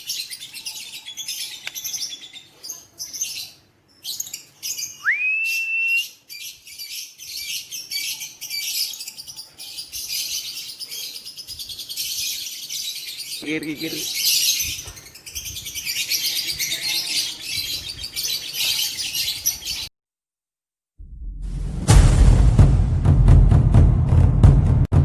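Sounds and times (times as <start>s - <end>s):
rising bird whistle: 4.9s - 6.2s.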